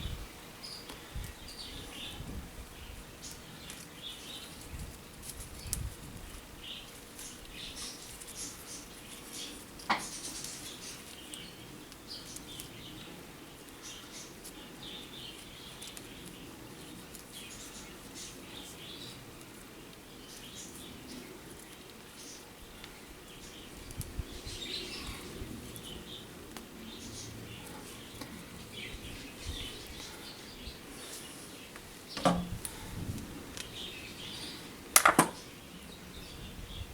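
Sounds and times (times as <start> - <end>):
small birds chirping: 0.0 - 36.9
low thumps: 32.2 - 32.7.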